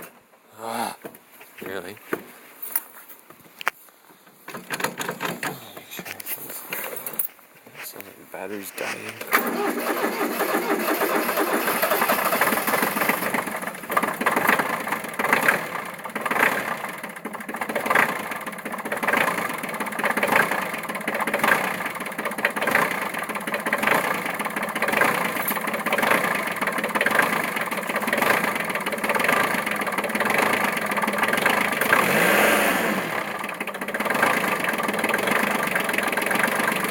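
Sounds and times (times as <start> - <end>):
tractor diesel engine running unevenly: 8.5 - 36.9
engine knocking: 9.3 - 36.9.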